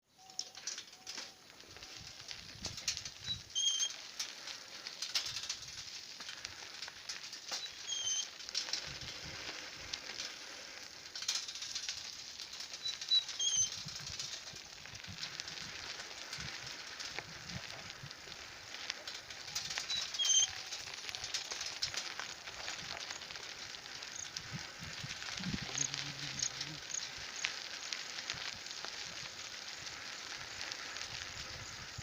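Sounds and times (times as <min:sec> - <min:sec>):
crackling hiss: 0:00.1 - 0:32.0
wind rumble on microphone: 0:01.7 - 0:03.6, 0:13.6 - 0:20.2, 0:22.4 - 0:32.0
bird call: 0:03.2 - 0:04.0, 0:07.5 - 0:08.3, 0:19.8 - 0:20.6.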